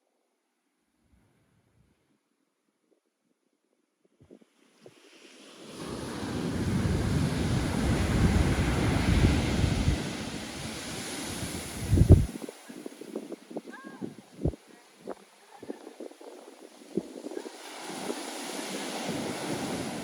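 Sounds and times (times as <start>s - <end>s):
ocean wave breaking: 4.9s - 20.0s
wind rumbling on microphone: 5.7s - 20.0s.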